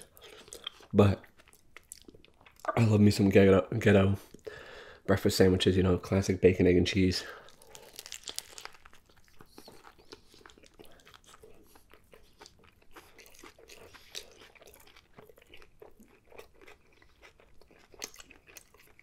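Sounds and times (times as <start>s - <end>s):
chewing mouth clicks: 7.5s - 19.0s.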